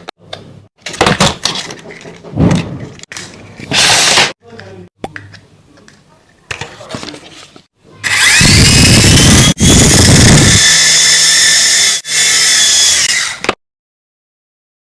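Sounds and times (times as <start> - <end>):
toy helicopter motor whining: 8.0 - 13.4.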